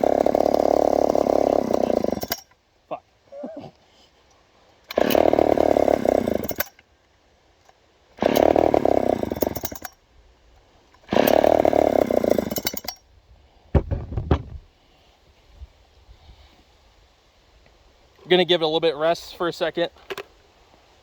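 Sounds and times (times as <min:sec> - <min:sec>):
chainsaw engine bursts: 0:00.0 - 0:02.6, 0:04.9 - 0:06.8, 0:08.2 - 0:10.0, 0:11.0 - 0:13.0
chainsaw pull-start: 0:00.0 - 0:02.6, 0:04.8 - 0:06.9, 0:08.1 - 0:10.0, 0:11.0 - 0:13.0
sharp knocks: 0:13.8 - 0:14.6.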